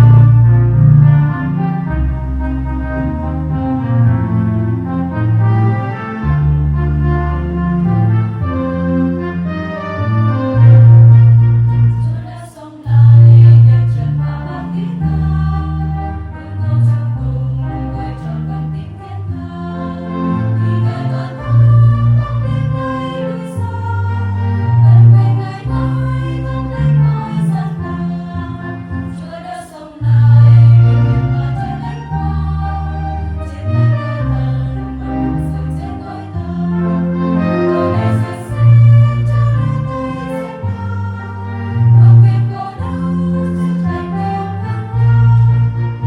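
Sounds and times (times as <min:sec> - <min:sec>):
strong bass line: 0:00.0 - 0:12.2, 0:12.9 - 0:14.4, 0:30.1 - 0:46.0
choir singing a hymn: 0:00.0 - 0:46.0
sustained keyboard chords: 0:00.0 - 0:46.0.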